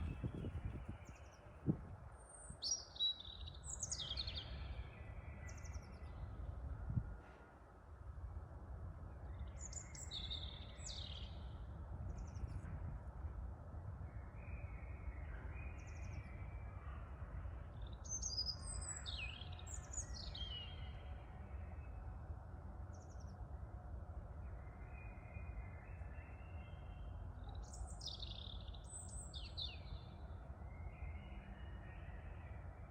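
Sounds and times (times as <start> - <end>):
wind buffeting microphone: 0.0 - 2.7, 6.5 - 7.2
songbirds chirping: 0.0 - 32.9.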